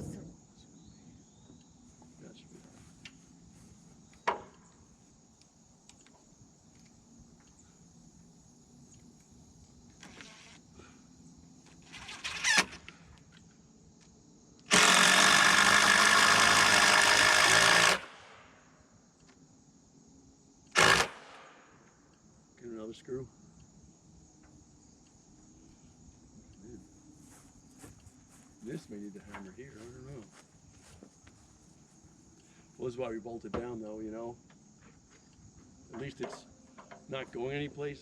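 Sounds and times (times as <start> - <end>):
crickets chirping: 0.0 - 38.0
power drill driving a screw: 14.7 - 18.3, 20.7 - 21.5.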